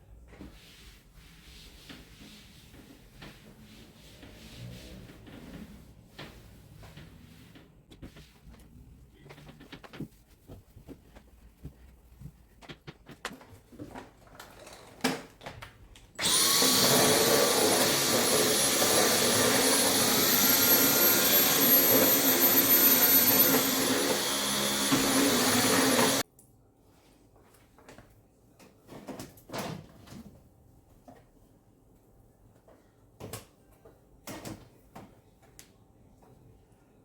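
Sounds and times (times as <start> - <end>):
vacuum cleaner running: 16.2 - 26.2.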